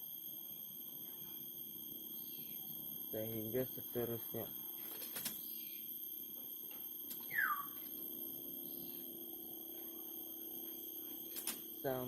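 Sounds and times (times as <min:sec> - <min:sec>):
high-pitched whine: 0:00.0 - 0:12.0
myna downward whistle: 0:07.2 - 0:07.8.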